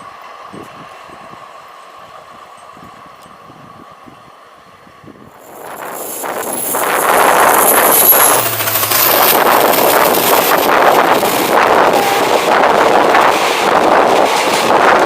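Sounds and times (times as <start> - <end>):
wind on microphone: 2.2 - 15.0
train wheels clattering: 5.4 - 15.0.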